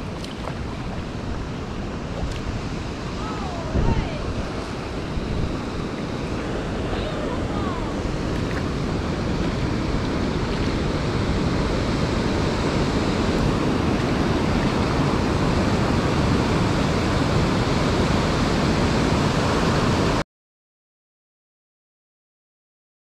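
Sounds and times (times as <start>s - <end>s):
wind buffeting microphone: 0.0s - 20.2s.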